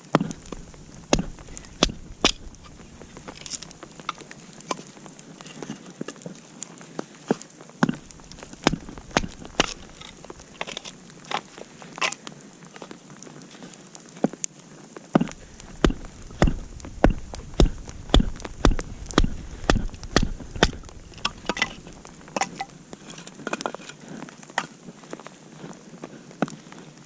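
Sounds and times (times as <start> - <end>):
campfire crackling and popping: 0.0 - 27.0
even thuds: 0.2 - 4.2, 7.8 - 10.8, 15.2 - 22.7.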